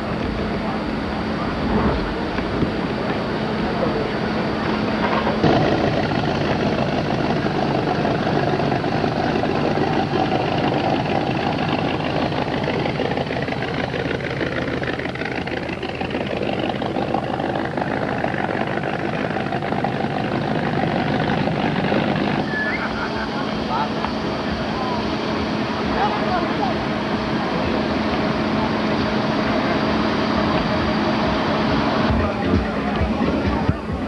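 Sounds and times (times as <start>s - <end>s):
dense noisy wash: 0.0s - 34.0s
engine running: 0.0s - 34.0s.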